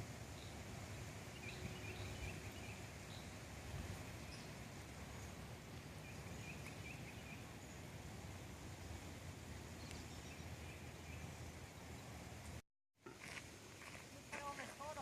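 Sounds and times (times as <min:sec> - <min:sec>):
faint bird chirps: 0:06.0 - 0:07.9.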